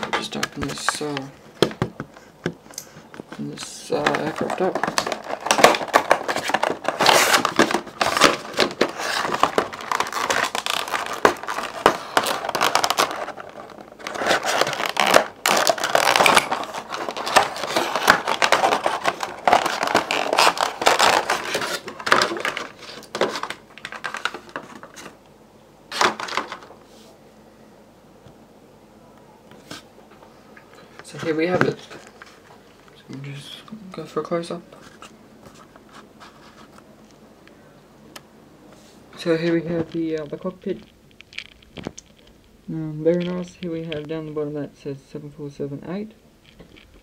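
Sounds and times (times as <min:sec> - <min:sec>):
packaging rustling and crinkling: 0:00.0 - 0:25.2, 0:25.9 - 0:26.8, 0:31.0 - 0:32.8, 0:39.2 - 0:44.1.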